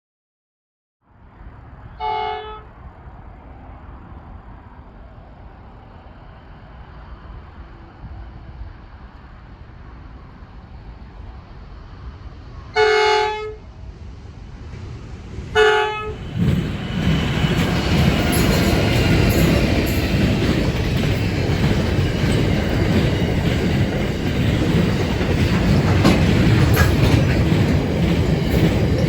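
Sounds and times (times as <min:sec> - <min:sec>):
freight train rumble: 0:01.1 - 0:29.0
locomotive horn: 0:01.9 - 0:02.7, 0:12.7 - 0:13.7, 0:15.6 - 0:16.2.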